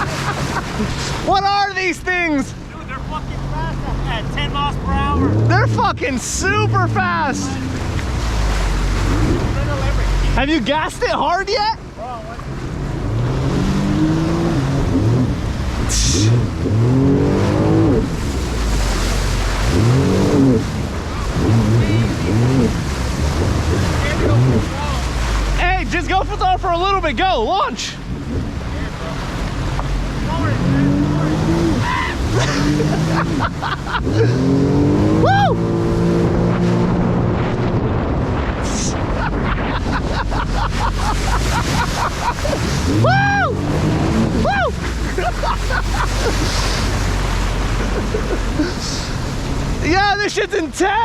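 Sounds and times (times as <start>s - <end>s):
hull slapping on water: 0.0s - 1.5s, 5.5s - 10.9s, 12.3s - 34.4s, 35.8s - 49.9s
jet ski engine revving: 0.0s - 11.2s, 11.8s - 50.1s
wind buffeting microphone: 12.4s - 25.6s, 28.0s - 49.9s.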